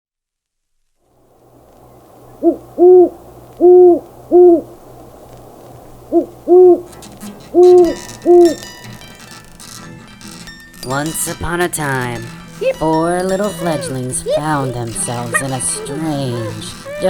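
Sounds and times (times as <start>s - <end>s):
owl hooting: 1.8s - 4.9s, 5.9s - 6.9s, 7.5s - 8.6s, 12.3s - 17.0s.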